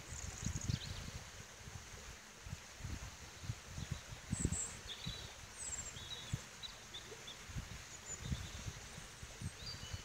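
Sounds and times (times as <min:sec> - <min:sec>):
birds chirping and trilling: 0:04.3 - 0:10.0.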